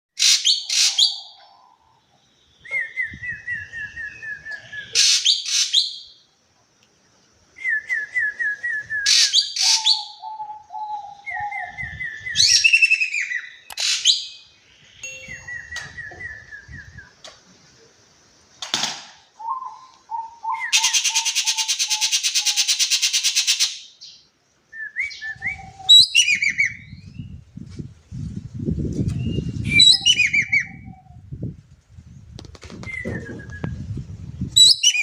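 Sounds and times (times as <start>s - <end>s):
bird harsh scratchy calls: 0.2s - 1.4s, 5.0s - 5.8s, 13.8s - 14.2s, 20.7s - 23.8s.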